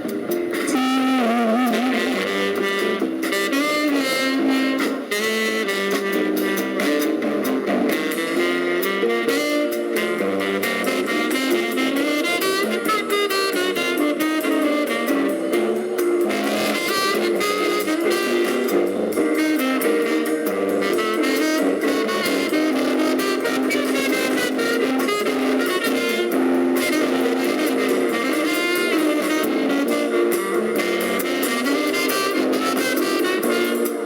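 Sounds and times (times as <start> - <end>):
jazz band playing: 0.0 - 34.0.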